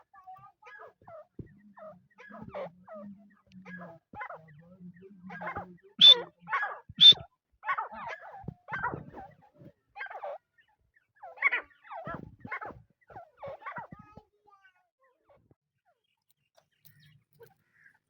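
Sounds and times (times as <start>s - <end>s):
bird calling harsh notes: 6.0s - 6.3s, 7.0s - 7.3s.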